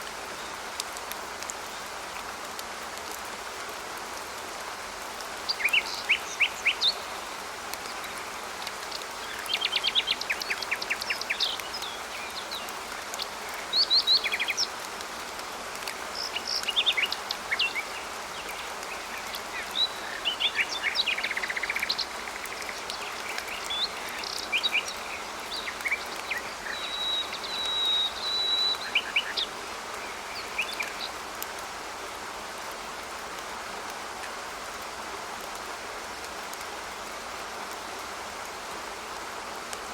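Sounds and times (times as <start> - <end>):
rain hissing: 0.0 - 39.9
songbirds chirping and trilling: 5.3 - 15.0, 16.1 - 31.4.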